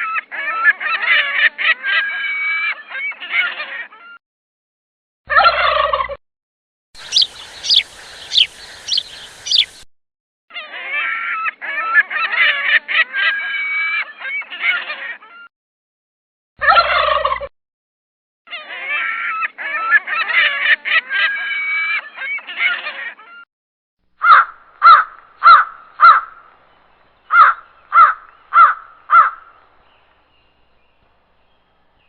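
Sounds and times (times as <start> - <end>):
birds calling: 7.0 - 9.9, 24.2 - 32.0.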